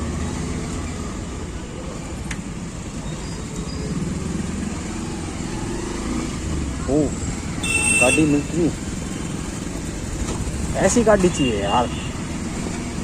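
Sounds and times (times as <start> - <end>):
road and wind noise: 0.0 - 13.0
motorcycle engine running: 6.4 - 11.4.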